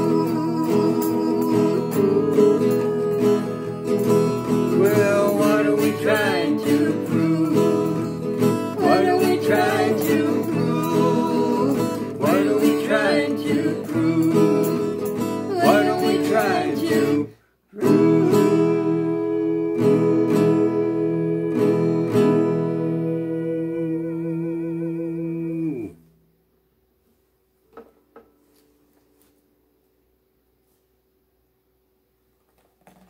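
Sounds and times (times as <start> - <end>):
acoustic guitar strumming chords: 0.0 - 26.3.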